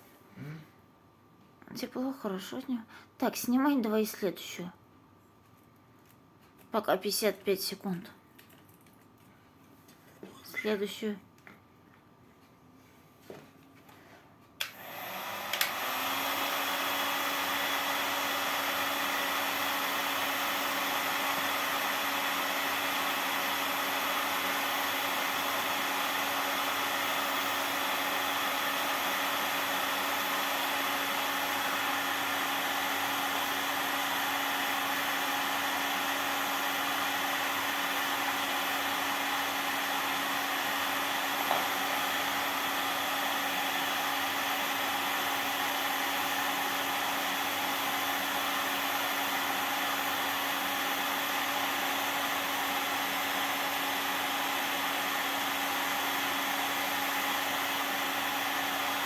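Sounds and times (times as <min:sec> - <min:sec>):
hot-air blower motor hum: 0:14.6 - 0:59.0.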